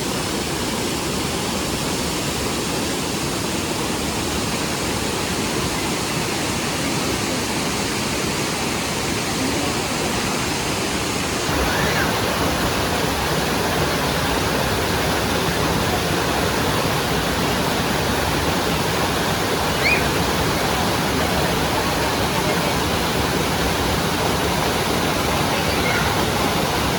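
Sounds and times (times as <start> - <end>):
waterfall rushing: 0.0 - 26.9
faint chirps: 19.7 - 20.2.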